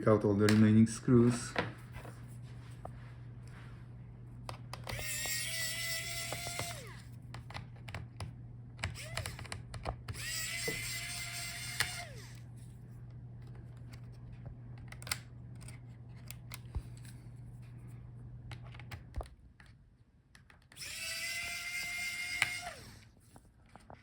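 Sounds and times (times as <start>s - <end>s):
small parts clicking and tapping: 4.5s - 12.4s
electric screwdriver motor whine: 4.8s - 7.2s, 8.8s - 12.5s, 20.7s - 23.1s.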